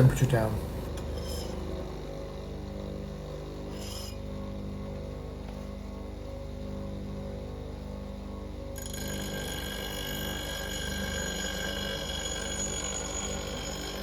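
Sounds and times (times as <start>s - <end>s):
bench grinder motor humming: 8.8s - 14.0s.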